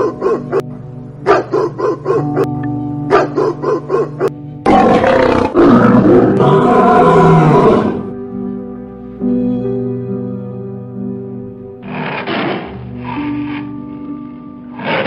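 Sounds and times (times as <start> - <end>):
background music: 0.0 - 15.0
small dog barking: 1.3 - 2.5, 3.1 - 4.3
lion roaring: 4.6 - 8.1, 11.8 - 13.8, 14.7 - 15.0.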